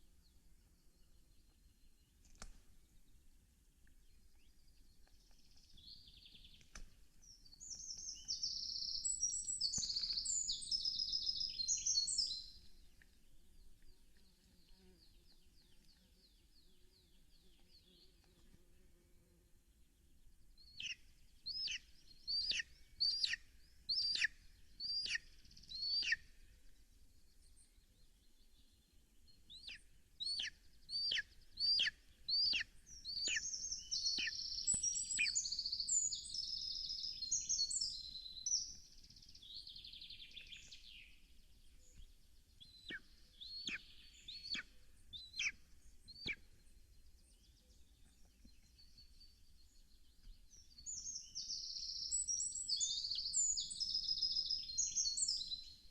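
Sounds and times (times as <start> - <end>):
high warbling bird song: 4.0 - 18.2, 20.1 - 55.9
high whistled bird calls: 7.6 - 12.6, 29.6 - 38.8.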